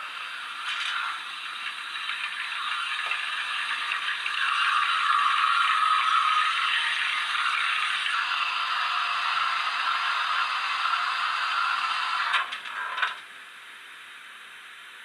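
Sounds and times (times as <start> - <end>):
steam hiss from small speaker: 0.0 - 15.0.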